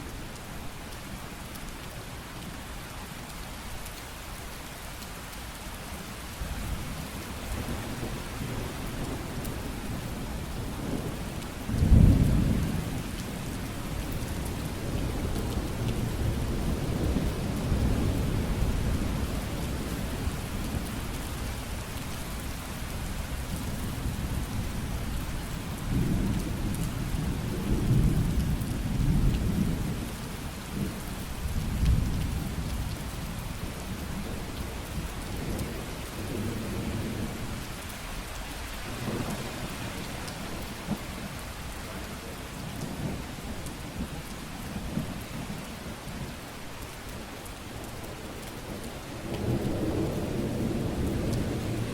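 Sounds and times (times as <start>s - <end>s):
steady rain: 0.0s - 51.9s
low rolling thunder: 7.4s - 13.2s, 48.8s - 51.9s.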